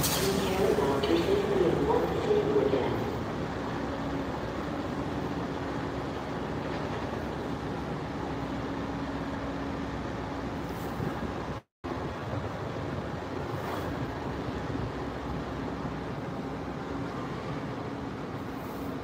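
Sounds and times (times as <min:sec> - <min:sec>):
train rumbling on tracks: 0:00.0 - 0:19.0.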